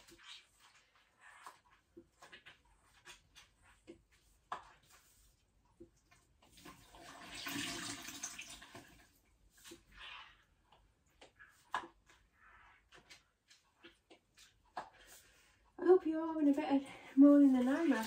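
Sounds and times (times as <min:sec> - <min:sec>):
water splashing and running: 0:06.4 - 0:09.9, 0:17.2 - 0:18.0.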